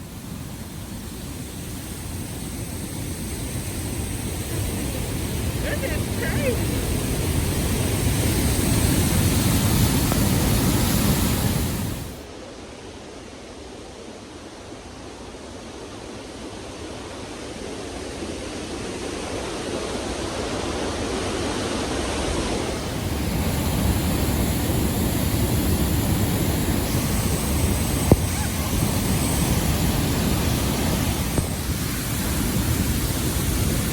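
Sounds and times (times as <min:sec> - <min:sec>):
waterfall roaring: 0:04.2 - 0:07.9, 0:22.6 - 0:33.9.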